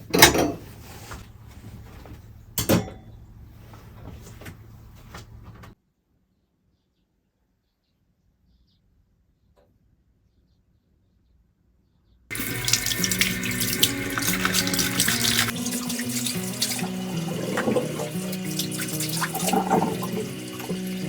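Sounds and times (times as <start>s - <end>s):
background music: 12.3s - 21.0s
tap water splashing into sink: 12.3s - 21.0s.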